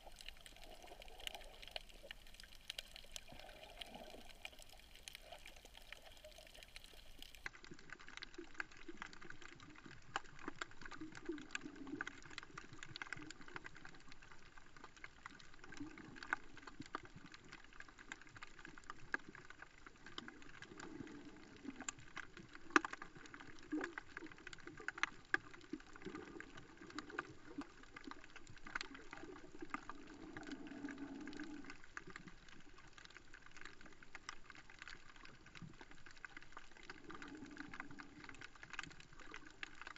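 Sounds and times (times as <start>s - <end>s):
muffled underwater water wash: 0.0s - 39.9s
sharp underwater clicks and crackles: 0.0s - 39.9s.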